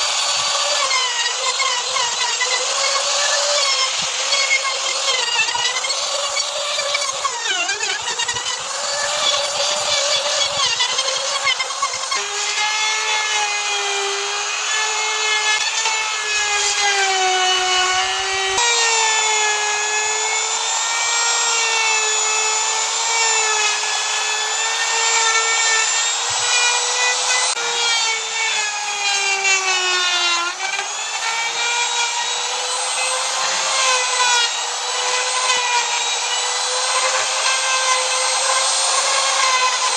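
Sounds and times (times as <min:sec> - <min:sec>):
power tool motor whining: 0:00.0 - 0:39.9.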